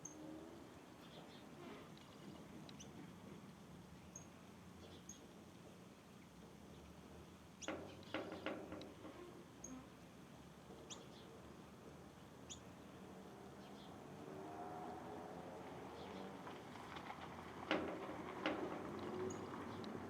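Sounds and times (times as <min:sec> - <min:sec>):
small birds chirping: 0:10.8 - 0:11.4, 0:12.4 - 0:14.0.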